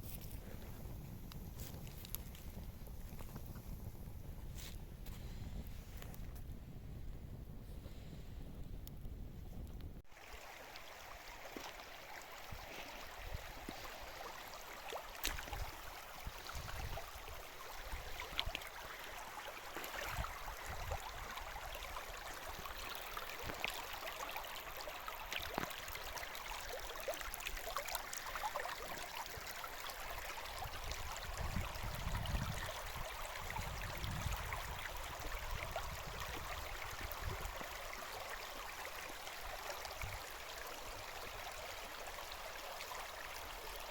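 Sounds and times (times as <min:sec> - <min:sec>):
running water rushing: 0:10.1 - 0:43.9.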